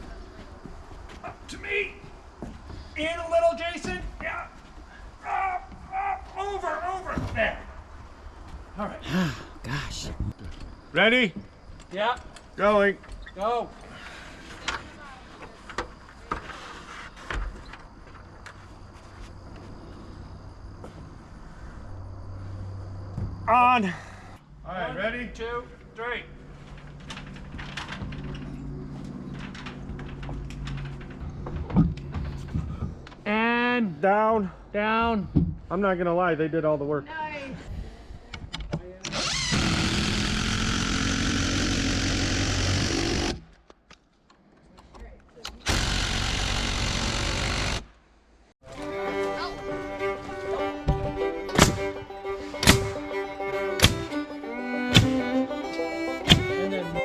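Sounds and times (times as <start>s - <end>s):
engine running: 48.7s - 57.0s
wooden knocks: 50.8s - 53.2s, 53.8s - 54.2s, 54.9s - 55.5s, 56.2s - 57.0s
heavy thump: 50.9s - 53.1s, 53.8s - 54.2s, 54.9s - 55.4s, 56.3s - 56.6s.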